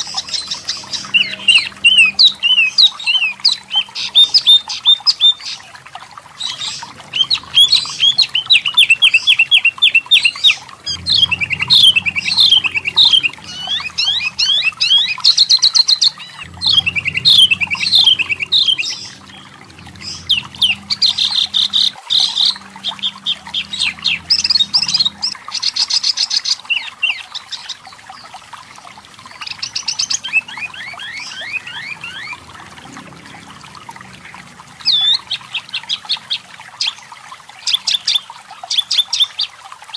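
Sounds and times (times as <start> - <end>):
bird chattering song: 6.4 - 28.3.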